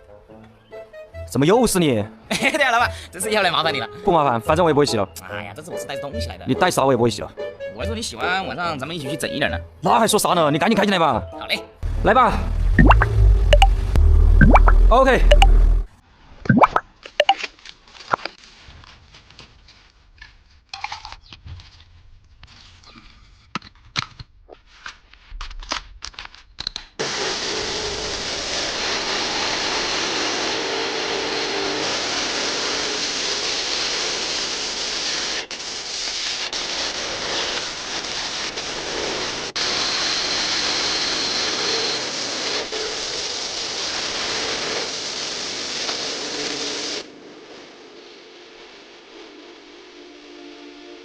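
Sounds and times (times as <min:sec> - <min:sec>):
high-pressure cleaning spray hiss: 0:27.0 - 0:47.0.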